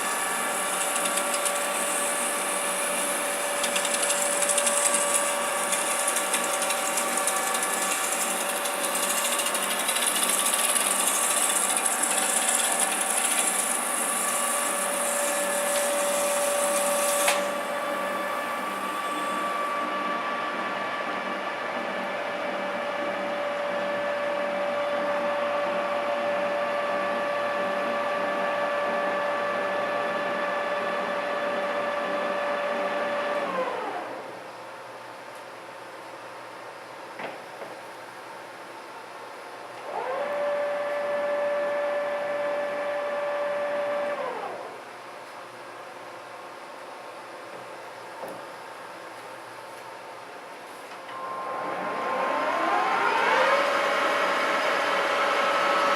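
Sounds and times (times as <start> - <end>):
lathe gearing whine: 0.0 - 34.6, 39.8 - 44.9, 51.1 - 55.9.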